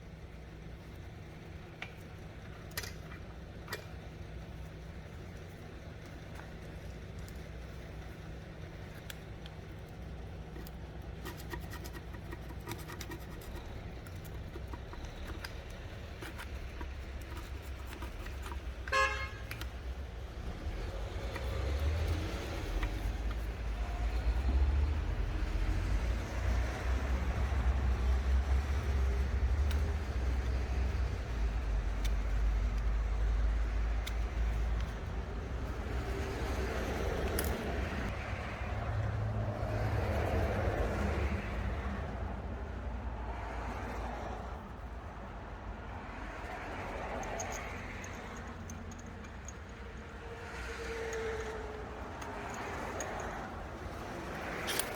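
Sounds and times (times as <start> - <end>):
low mechanical rumble: 0.0 - 38.2.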